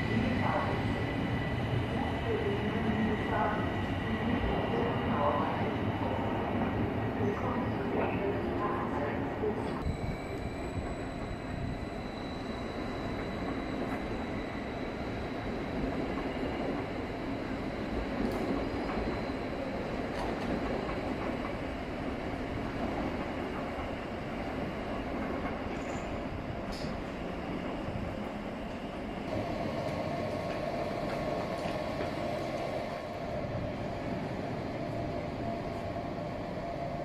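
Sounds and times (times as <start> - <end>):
train rumbling on tracks: 0.0 - 37.0
faint high whine: 9.8 - 14.8.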